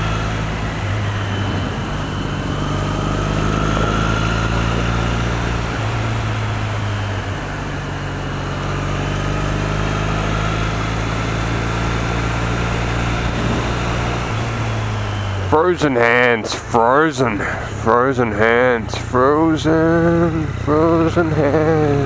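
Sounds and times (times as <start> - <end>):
motorcycle engine cruising: 0.0 - 22.0
wind noise rushing: 0.8 - 7.1, 11.0 - 16.6.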